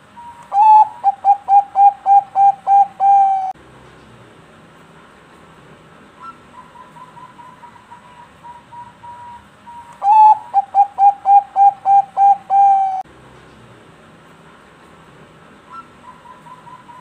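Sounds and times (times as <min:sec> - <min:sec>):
dove cooing: 0:00.1 - 0:03.6, 0:06.2 - 0:13.0, 0:15.7 - 0:17.0.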